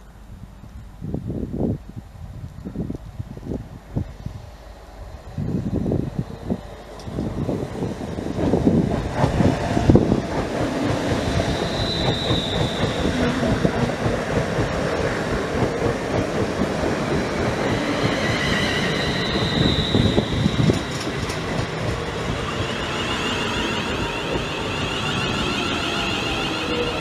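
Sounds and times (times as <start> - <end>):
train wheels rumbling on rail: 0.2 - 27.0
faint high wheel squeal: 11.3 - 13.3, 17.6 - 21.3.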